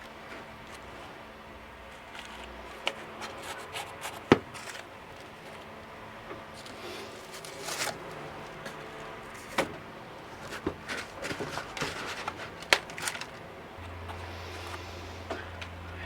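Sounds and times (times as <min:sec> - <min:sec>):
soil rustling: 0:00.0 - 0:16.0
plant pots knocking and tapping: 0:08.0 - 0:12.9.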